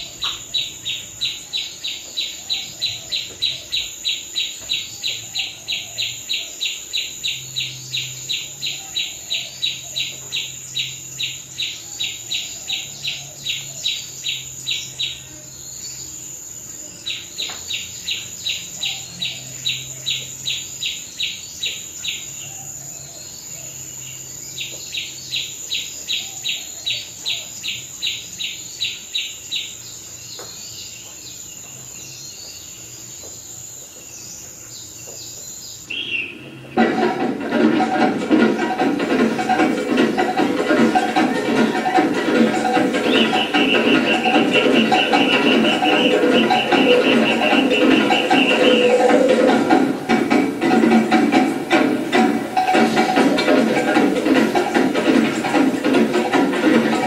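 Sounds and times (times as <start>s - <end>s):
steady high insect trill: 0.0s - 36.4s
cricket chirping: 0.0s - 37.2s, 37.8s - 53.5s.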